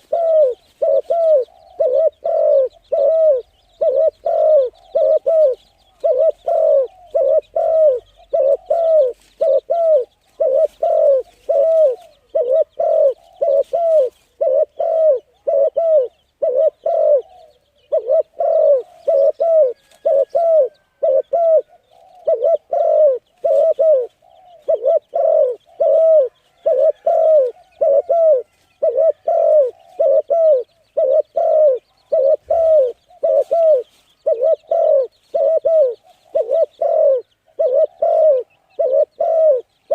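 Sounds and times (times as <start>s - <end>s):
bird calling loudly: 0.0s - 39.9s.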